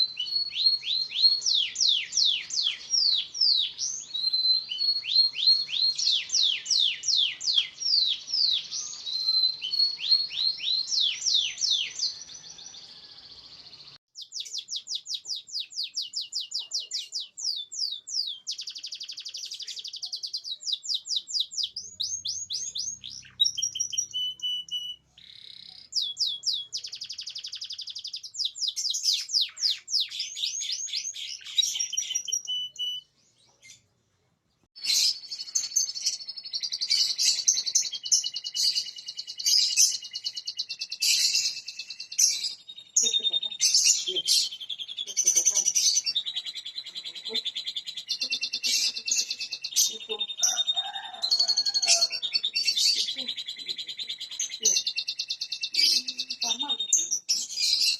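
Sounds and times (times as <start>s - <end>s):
canary singing trills: 0.0s - 33.9s, 34.7s - 57.9s.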